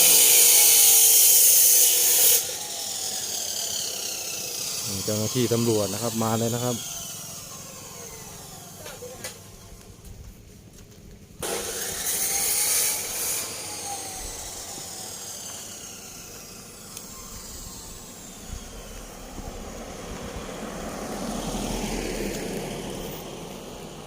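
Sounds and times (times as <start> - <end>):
vehicle passing by: 18.6 - 24.0.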